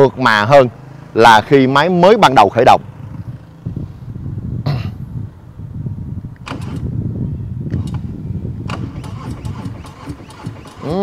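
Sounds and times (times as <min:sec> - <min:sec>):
sharp clicks: 0:06.3 - 0:06.9, 0:07.7 - 0:11.0
motorcycle engine idling: 0:07.2 - 0:11.0.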